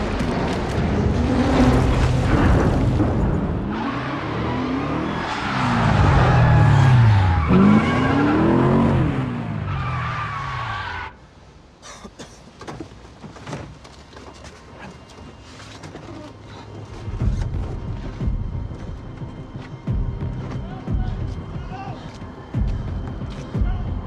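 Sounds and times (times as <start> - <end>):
car engines revving: 0.0 - 11.2
tyres squealing and skidding: 3.6 - 11.2.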